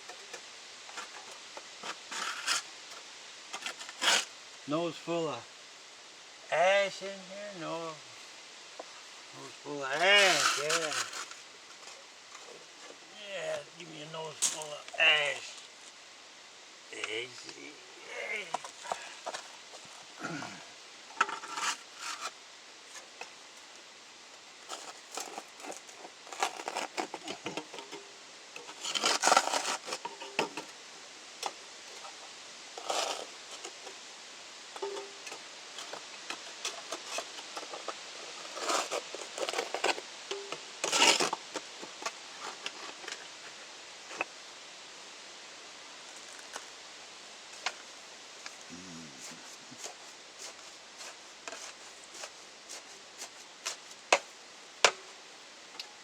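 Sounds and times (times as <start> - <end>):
shovel scraping brick and ash: 0.0 - 4.4, 9.9 - 15.6, 17.0 - 23.8, 24.4 - 34.0, 34.6 - 44.3, 48.5 - 55.1.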